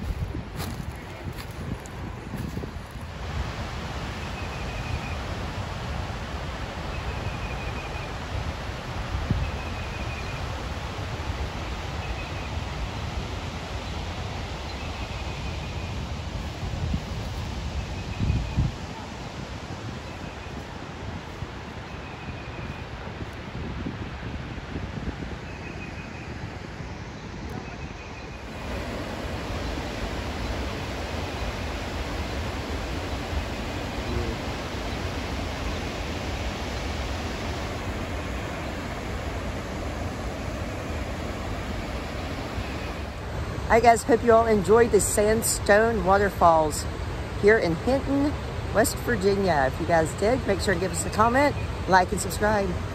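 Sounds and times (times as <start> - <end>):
waterfall rushing: 28.4 - 44.0.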